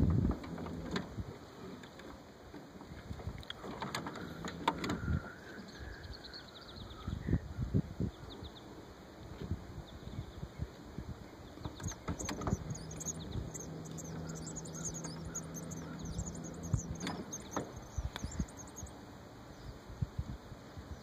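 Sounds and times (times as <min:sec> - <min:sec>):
steady low hum: 0:03.0 - 0:21.0
small birds chirping: 0:09.8 - 0:19.9
low thumps: 0:11.7 - 0:18.9.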